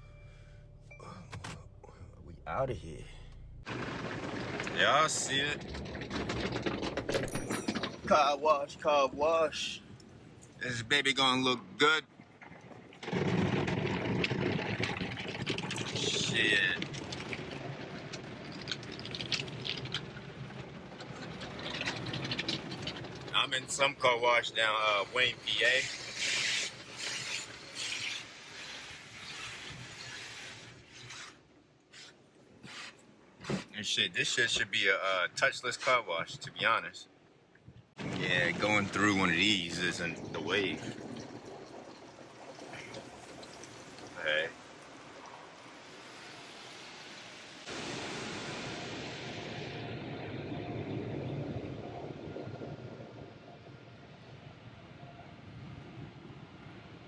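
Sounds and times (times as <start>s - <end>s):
car wash water spray and machinery: 41.3s - 52.2s.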